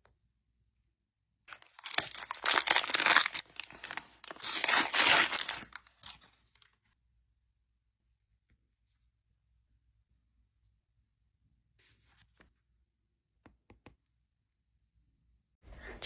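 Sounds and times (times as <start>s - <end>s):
packaging tearing and crinkling: 1.5s - 6.7s.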